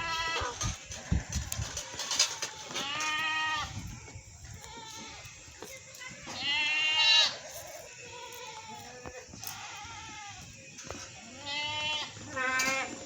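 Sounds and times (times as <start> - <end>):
goats bleating: 1.9 - 3.8, 4.5 - 13.0.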